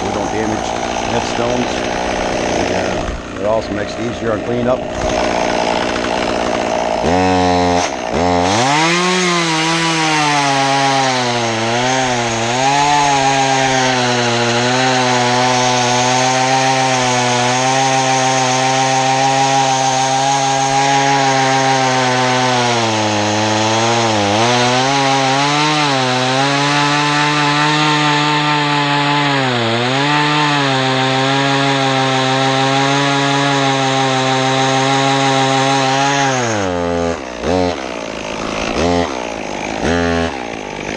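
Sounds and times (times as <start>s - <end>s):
chainsaw cutting through limbs: 0.0s - 40.9s.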